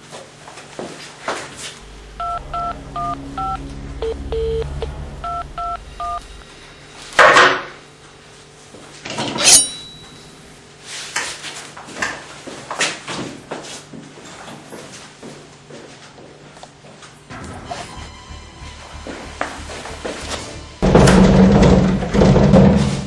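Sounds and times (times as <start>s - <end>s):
loud sudden noises: 1.8s - 8.5s
low hum: 1.8s - 8.8s.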